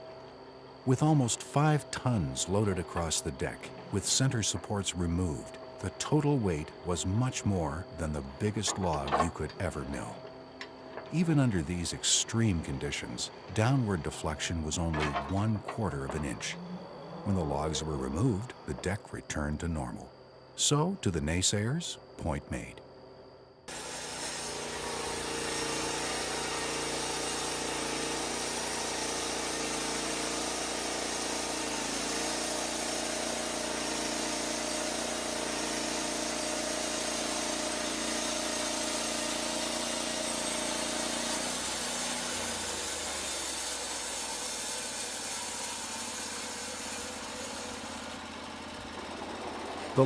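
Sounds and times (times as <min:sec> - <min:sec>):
band sawmill cutting log: 0:00.0 - 0:19.3, 0:23.7 - 0:50.0.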